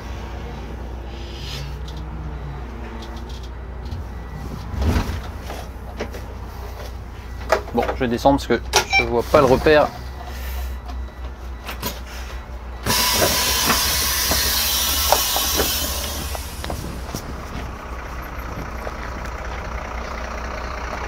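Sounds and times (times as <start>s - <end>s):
diesel engine idling: 0.0s - 21.0s
loud compressed air hiss: 12.8s - 16.8s.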